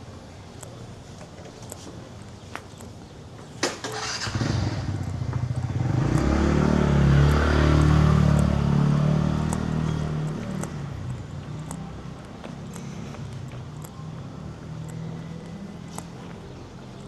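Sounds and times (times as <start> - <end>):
motorcycle engine passing by: 3.9 - 11.1.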